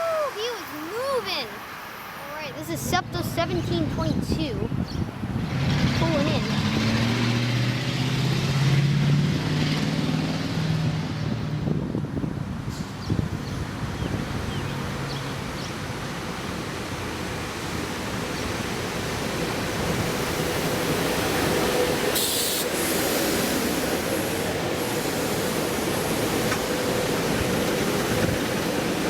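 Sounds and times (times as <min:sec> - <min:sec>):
passenger train rumbling: 0:00.0 - 0:29.0
brief hiss: 0:22.2 - 0:25.6.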